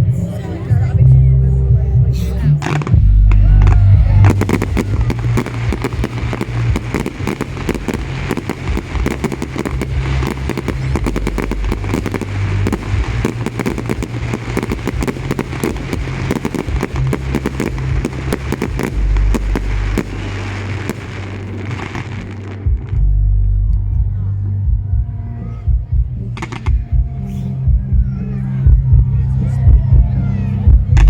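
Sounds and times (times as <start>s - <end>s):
low rumble: 0.0s - 31.0s
fireworks crackling and banging: 2.6s - 23.0s.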